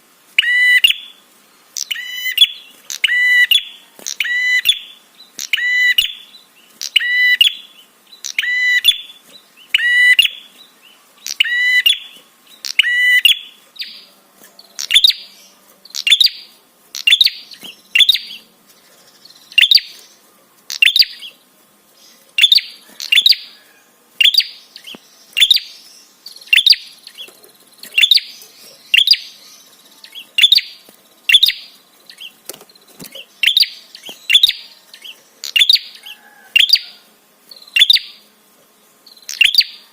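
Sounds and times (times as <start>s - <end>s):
songbird calling: 0.4s - 38.4s, 39.0s - 39.9s.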